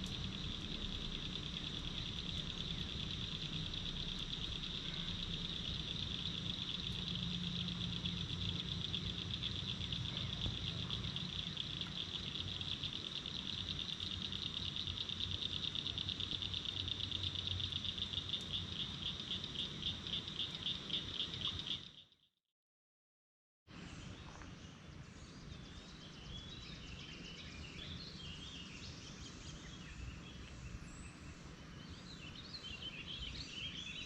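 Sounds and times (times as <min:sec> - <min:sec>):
low hum: 0:00.0 - 0:18.6
insects chirring: 0:00.0 - 0:22.2.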